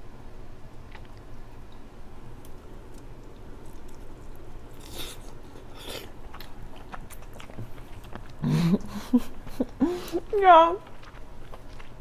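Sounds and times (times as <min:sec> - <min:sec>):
chewing and wet mouth sounds: 0:00.8 - 0:12.0.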